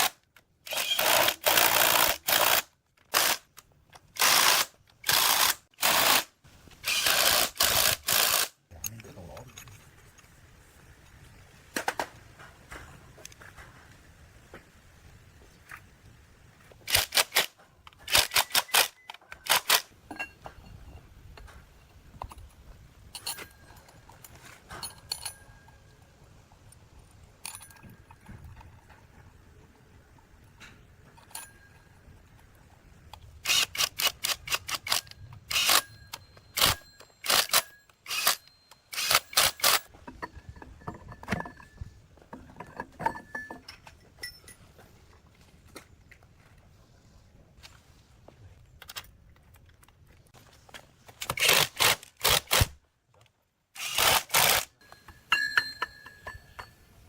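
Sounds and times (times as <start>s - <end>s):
hand tools tapping on metal: 19.0s - 26.1s, 34.4s - 45.9s, 54.8s - 57.0s.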